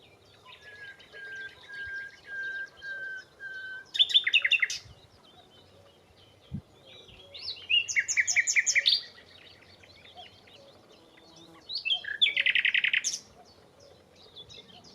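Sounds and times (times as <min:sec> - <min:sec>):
faint chirps of other birds: 0:00.0 - 0:14.9
nightingale singing: 0:00.0 - 0:14.9.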